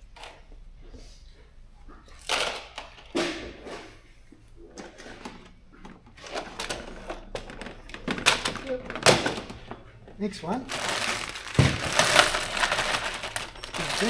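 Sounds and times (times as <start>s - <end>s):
bolts clattering: 1.9s - 3.9s, 4.8s - 14.0s
rustling: 10.5s - 14.0s.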